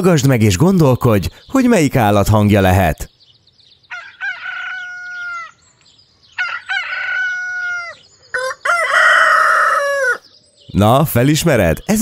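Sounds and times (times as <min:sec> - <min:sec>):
rooster crowing: 0:03.9 - 0:05.6, 0:06.4 - 0:10.3.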